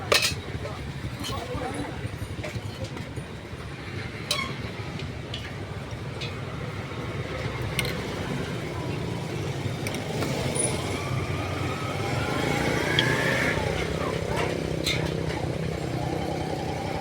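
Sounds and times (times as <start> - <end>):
low rumble of street traffic: 0.0 - 17.0.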